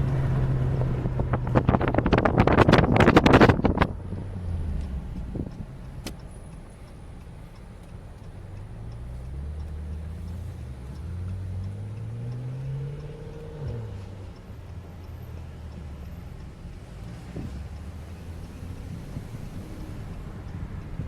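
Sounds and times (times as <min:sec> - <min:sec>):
car engine revving: 0:00.0 - 0:21.0
sharp click: 0:04.8 - 0:06.7.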